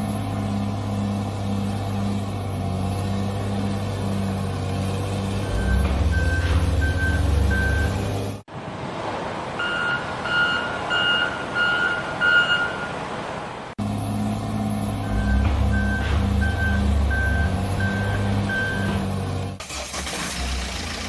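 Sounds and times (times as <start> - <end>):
truck engine rumble: 0.0 - 21.0
reversing alarm beeping: 5.4 - 8.0, 9.6 - 13.0, 15.0 - 19.0
two-tone reversing beeps: 5.4 - 8.0, 9.6 - 12.9, 15.0 - 19.0.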